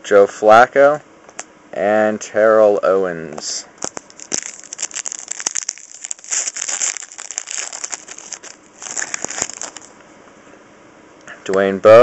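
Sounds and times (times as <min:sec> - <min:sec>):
card pack wrapper crinkling and tearing: 0:03.8 - 0:10.0.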